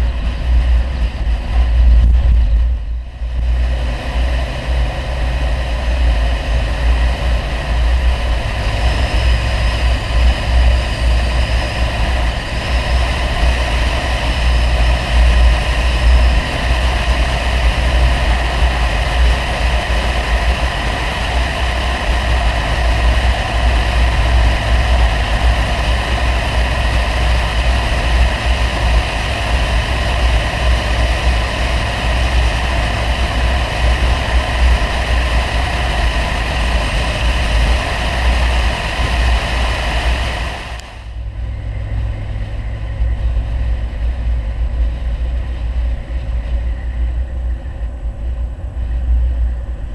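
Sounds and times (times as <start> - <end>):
car engine drone: 0.0 - 49.9.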